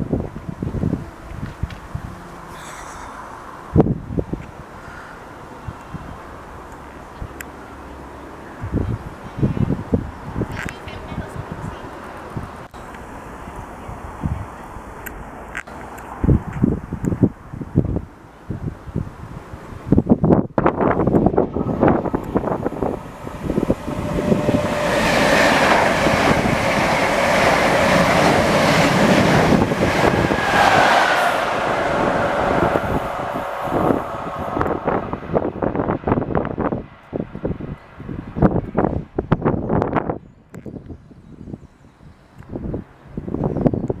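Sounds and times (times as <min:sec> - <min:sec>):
wind buffeting microphone: 0:00.0 - 0:07.4, 0:08.4 - 0:12.8, 0:13.4 - 0:15.1, 0:16.0 - 0:44.0
train passing at speed: 0:02.7 - 0:39.1
steady whine: 0:21.3 - 0:36.2.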